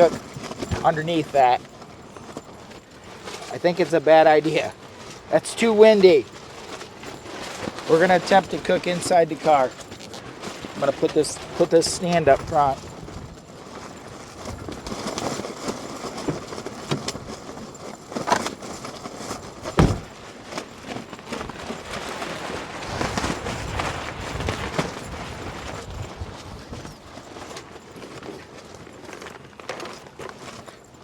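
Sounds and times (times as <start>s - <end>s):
sharp thump: 19.8s - 20.1s
gusting wind: 21.8s - 27.1s.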